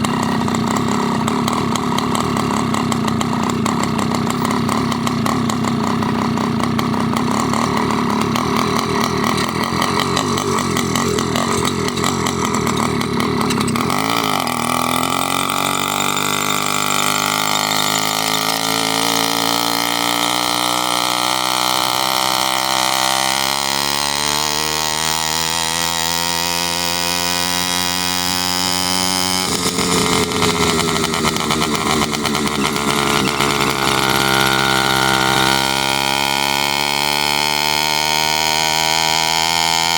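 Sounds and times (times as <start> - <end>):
small engine running: 0.0 - 39.9
high squeaky noise: 29.8 - 35.1.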